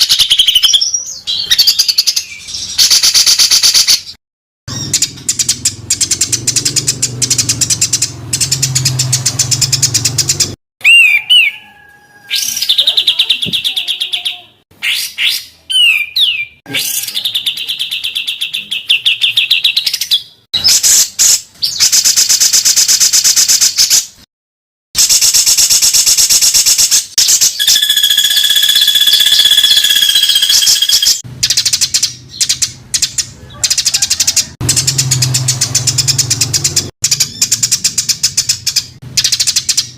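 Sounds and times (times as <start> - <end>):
long steady bird whistle: 27.2 - 31.2
songbird harsh rapid trills: 27.2 - 31.2
bird whistled glides: 27.6 - 31.2.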